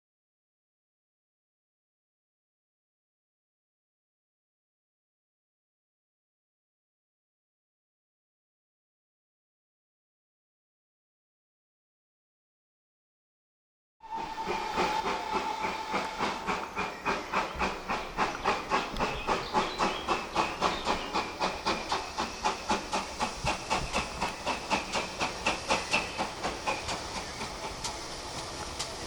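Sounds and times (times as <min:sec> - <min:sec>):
steam hiss: 0:14.0 - 0:29.0
steam locomotive chuffing: 0:14.0 - 0:29.0.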